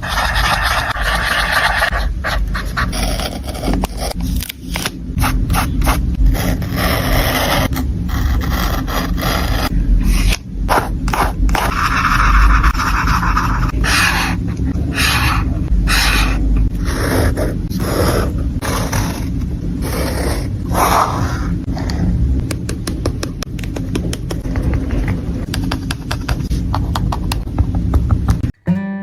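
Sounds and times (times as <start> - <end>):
paper scraping and rubbing: 0.0 - 21.5.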